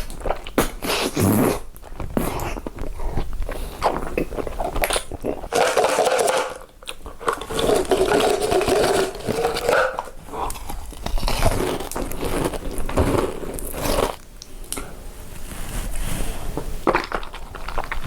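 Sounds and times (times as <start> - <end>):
crunchy chewing of food: 0.0 - 14.9, 15.9 - 18.0.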